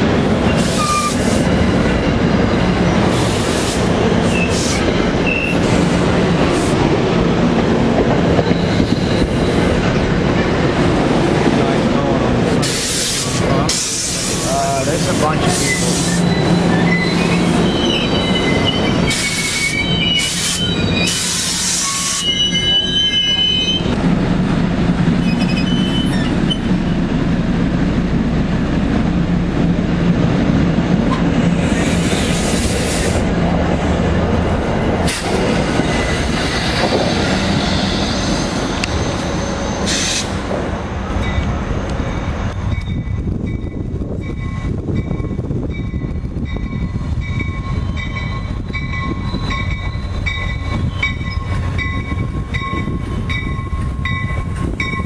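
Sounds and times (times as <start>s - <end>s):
wheels rumbling on rail: 0.0s - 55.0s
short squeals and hisses: 15.4s - 23.9s, 39.2s - 40.4s.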